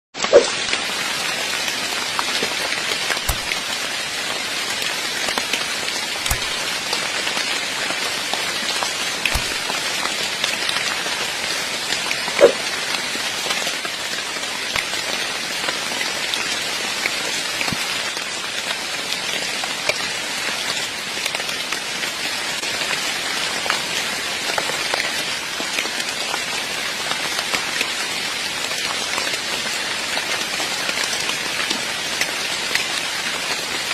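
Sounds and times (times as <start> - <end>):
heavy rain falling: 0.2 - 33.9.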